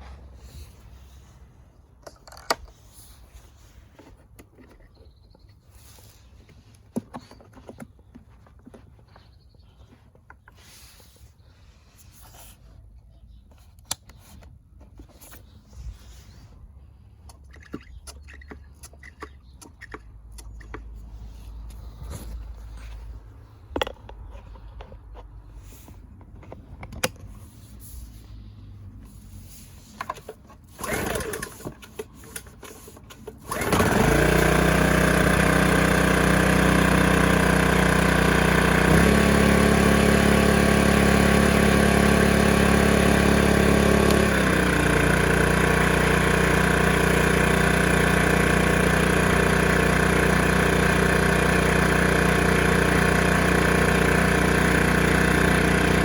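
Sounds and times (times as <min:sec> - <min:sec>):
generator engine running: 0:30.7 - 0:56.0.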